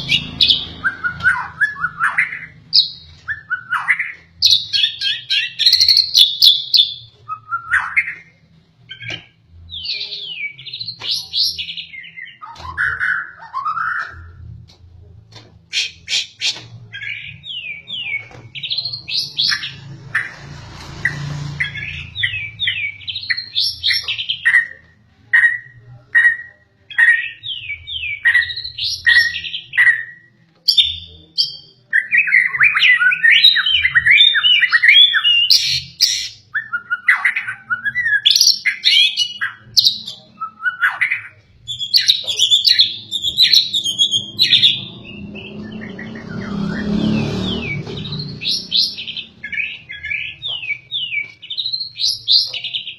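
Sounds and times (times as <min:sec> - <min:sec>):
bird singing whistled notes: 0:25.4 - 0:52.9.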